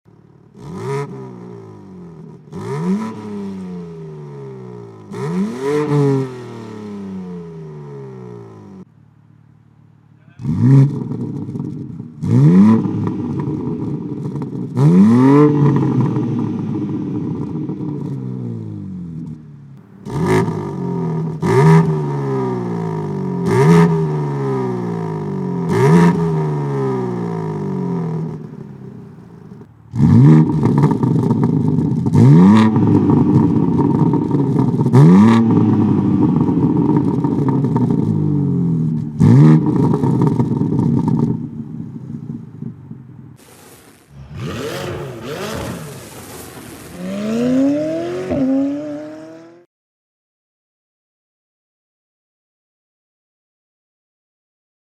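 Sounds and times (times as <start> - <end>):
car engine revving hard: 0.6 - 8.7, 10.4 - 18.8, 19.9 - 28.8, 29.9 - 41.3, 44.1 - 49.6
exhaust crack: 10.1 - 49.3.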